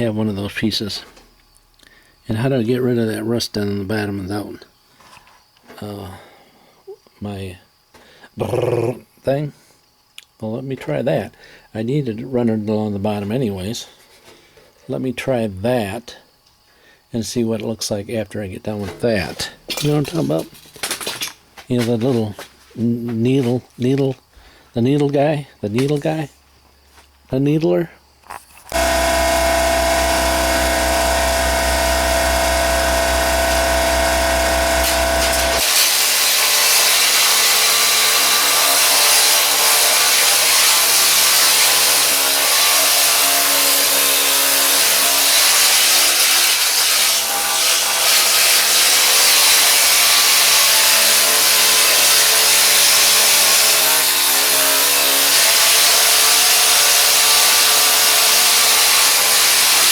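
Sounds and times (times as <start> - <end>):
pneumatic needle scaler buzzing: 28.7 - 37.4.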